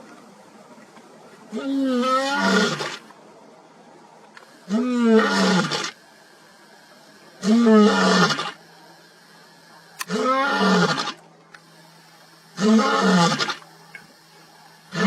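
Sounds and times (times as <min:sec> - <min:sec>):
lion roaring: 0:01.5 - 0:03.0, 0:04.7 - 0:06.0, 0:07.4 - 0:08.6, 0:10.1 - 0:11.2, 0:12.6 - 0:13.6, 0:14.5 - 0:15.0.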